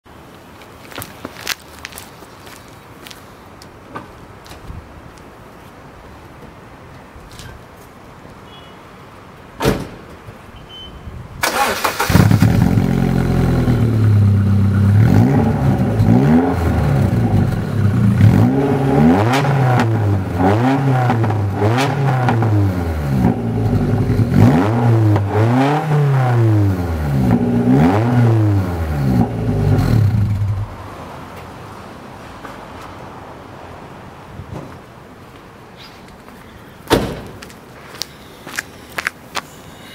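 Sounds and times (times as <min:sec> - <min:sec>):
car engine idling and revving: 0:11.8 - 0:30.9.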